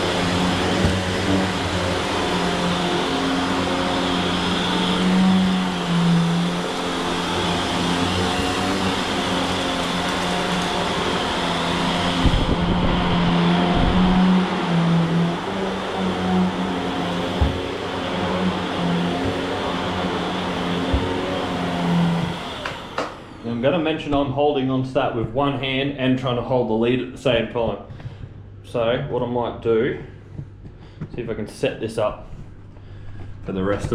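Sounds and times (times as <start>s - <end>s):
vacuum cleaner running: 0.0s - 24.7s.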